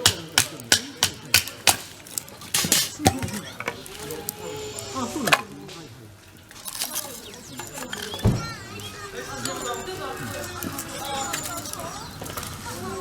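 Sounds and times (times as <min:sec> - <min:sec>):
wood being chopped: 0:00.0 - 0:03.4.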